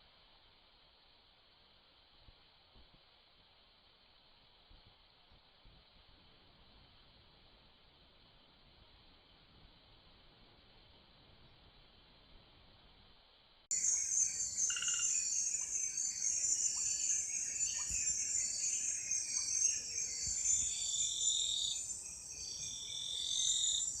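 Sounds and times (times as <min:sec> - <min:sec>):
night animal calls: 0:13.7 - 0:21.8
crickets and insects trilling: 0:13.7 - 0:24.0.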